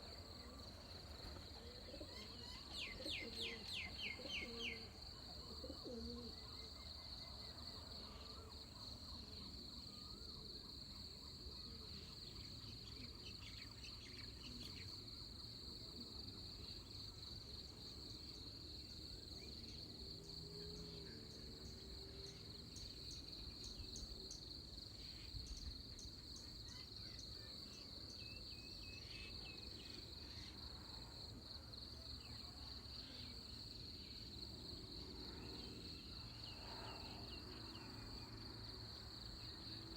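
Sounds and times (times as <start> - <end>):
insects trilling: 0.0 - 7.0
faint bird chirps: 1.3 - 7.5.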